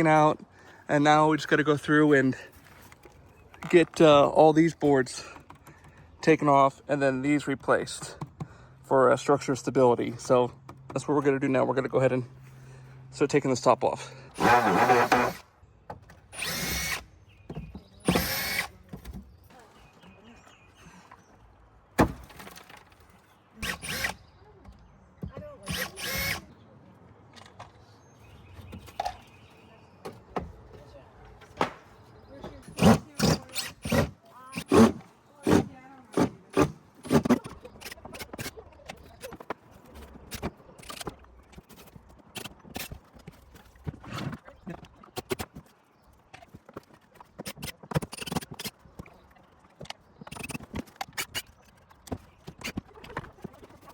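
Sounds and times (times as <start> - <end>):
power drill running: 14.4 - 15.4, 16.4 - 17.0, 18.0 - 18.7, 23.6 - 24.2, 25.7 - 26.4, 32.7 - 38.0.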